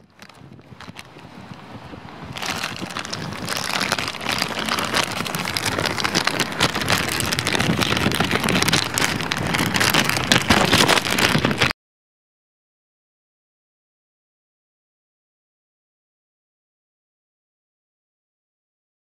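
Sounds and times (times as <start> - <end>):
heavy rain patter: 0.1 - 11.7.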